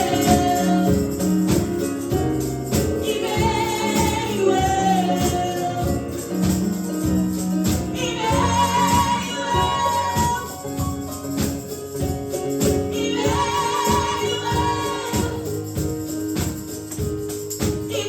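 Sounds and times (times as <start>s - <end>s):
voices singing: 0.0s - 1.4s, 2.9s - 6.2s, 7.9s - 11.1s, 12.9s - 15.8s
gospel band playing: 0.0s - 18.0s.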